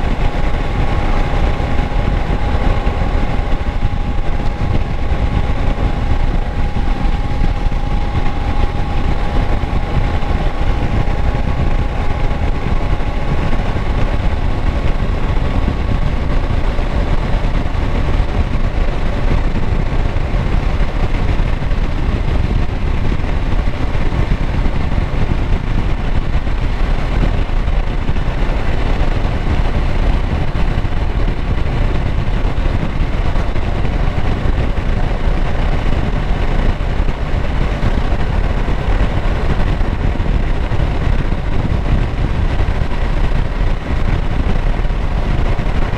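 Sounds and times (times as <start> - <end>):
faint high whine: 0.0 - 25.6
motorcycle engine running steadily: 0.0 - 45.9.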